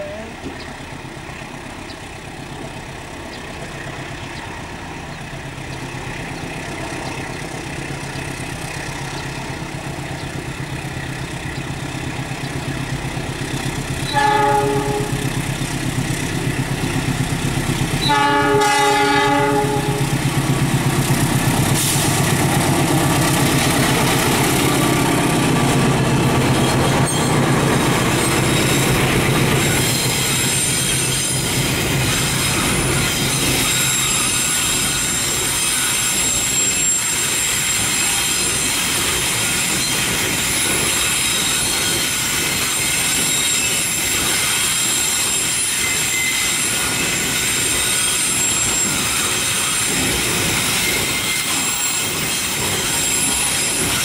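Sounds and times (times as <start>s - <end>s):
locomotive engine running: 0.0s - 35.6s
train horn blasts: 14.0s - 15.4s, 18.0s - 20.1s.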